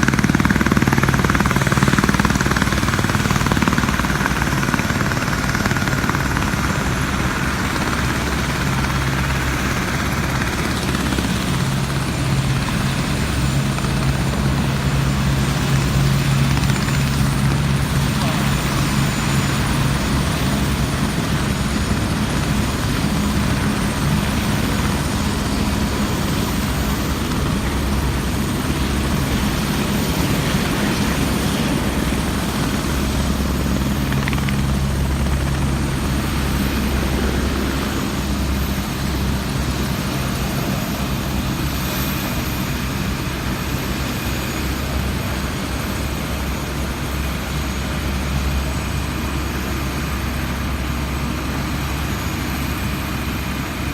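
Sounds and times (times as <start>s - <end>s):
helicopter rotor and turbine noise: 0.0s - 53.9s.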